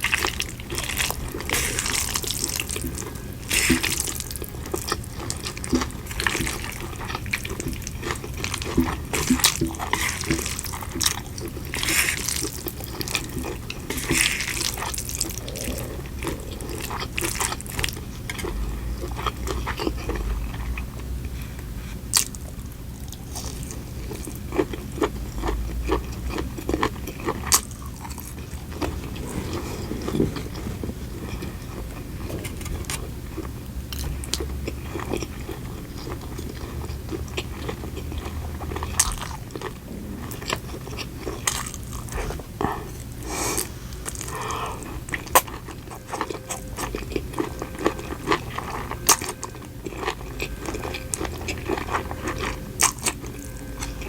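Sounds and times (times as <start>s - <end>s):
person chewing with crunches: 0.0s - 54.0s
wet mouth sounds: 13.9s - 17.9s.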